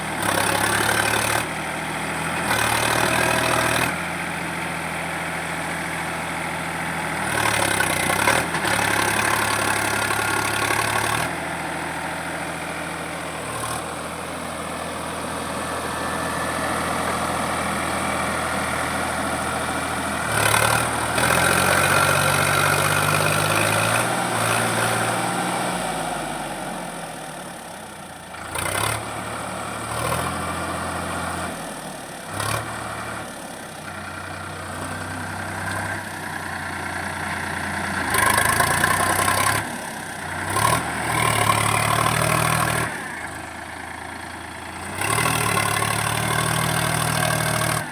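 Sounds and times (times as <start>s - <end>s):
tractor diesel engine under load: 0.0s - 47.9s.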